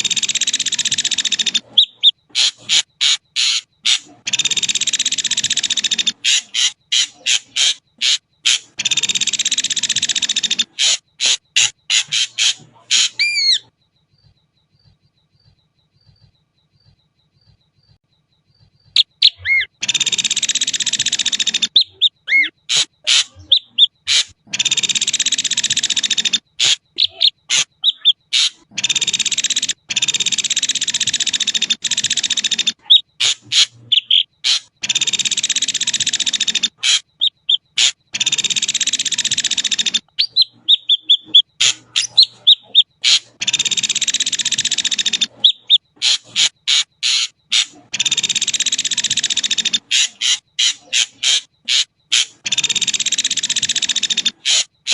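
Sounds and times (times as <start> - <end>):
harsh rasping bird calls: 0.0 - 54.9
sharp clicks: 28.4 - 54.9.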